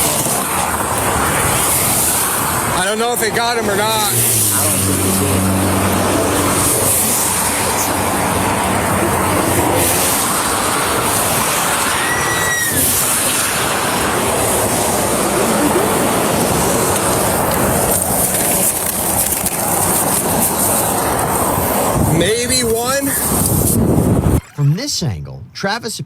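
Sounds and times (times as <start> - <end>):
road and wind noise: 0.0 - 24.4
high chirp: 24.4 - 25.6.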